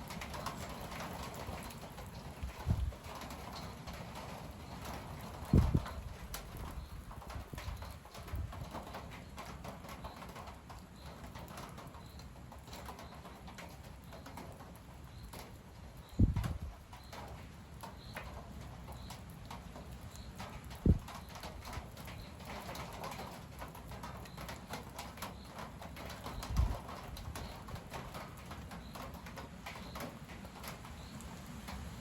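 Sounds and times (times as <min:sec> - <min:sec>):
gusty wind through trees: 0:00.0 - 0:11.3, 0:12.0 - 0:32.0
wind buffeting microphone: 0:01.0 - 0:04.3, 0:05.2 - 0:08.8, 0:16.0 - 0:16.8, 0:20.7 - 0:21.4, 0:26.2 - 0:28.2.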